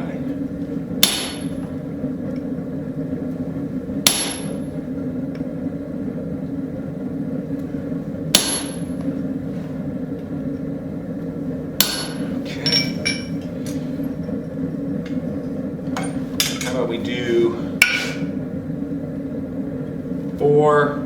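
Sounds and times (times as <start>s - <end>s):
steady low hum: 0.0s - 21.0s
hammer striking steel: 1.0s - 1.7s, 4.0s - 4.7s, 8.3s - 9.0s, 11.8s - 13.4s, 17.8s - 18.3s.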